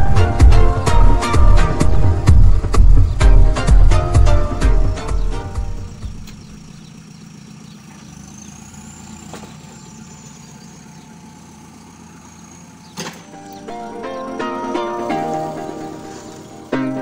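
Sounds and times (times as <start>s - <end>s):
diesel engine running at low revs: 0.0s - 17.0s.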